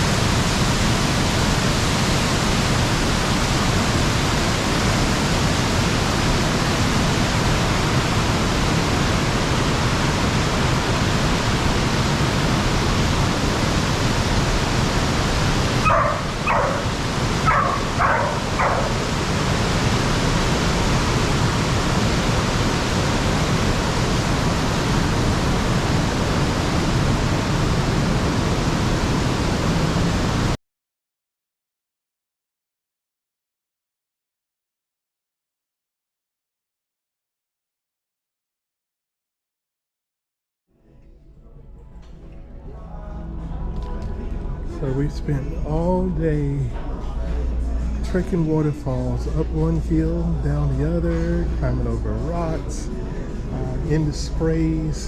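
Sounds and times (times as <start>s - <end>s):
waterfall rushing: 0.0s - 30.6s.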